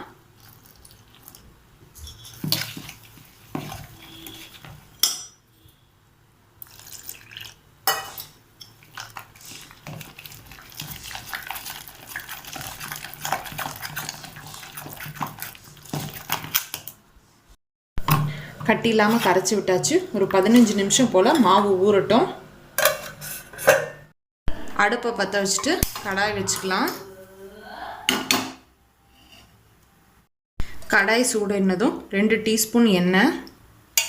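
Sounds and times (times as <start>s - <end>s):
utensil scraping a bowl: 2.0s - 4.9s, 8.0s - 16.6s.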